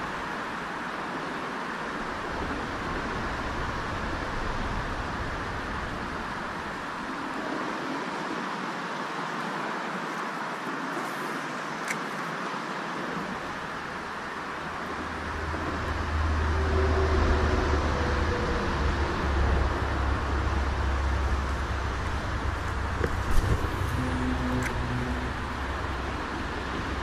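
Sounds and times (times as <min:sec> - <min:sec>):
rushing outdoor noise: 0:00.0 - 0:27.0
low rumble: 0:15.0 - 0:27.0.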